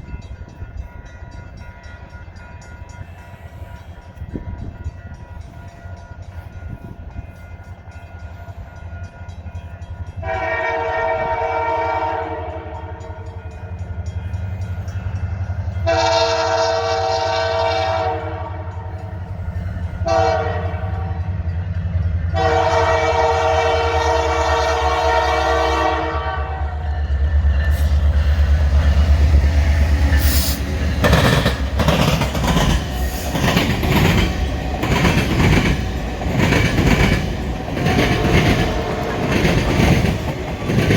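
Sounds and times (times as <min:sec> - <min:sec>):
train horn: 0:10.2 - 0:13.4, 0:15.8 - 0:19.1, 0:20.0 - 0:21.4, 0:22.2 - 0:27.0, 0:37.8 - 0:40.0
locomotive engine rumble: 0:12.9 - 0:40.9
train wheels clattering over rails: 0:27.6 - 0:40.9.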